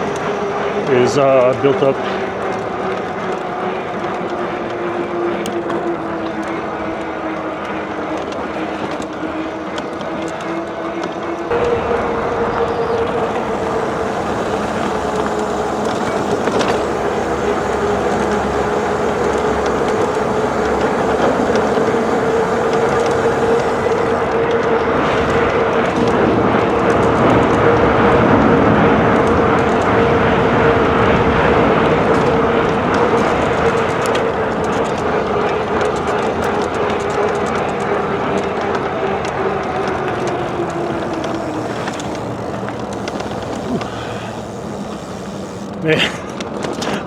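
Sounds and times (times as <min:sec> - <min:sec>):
road noise: 0:11.5 - 0:24.4, 0:39.4 - 0:45.8
steady whine: 0:11.5 - 0:24.4, 0:39.2 - 0:45.8.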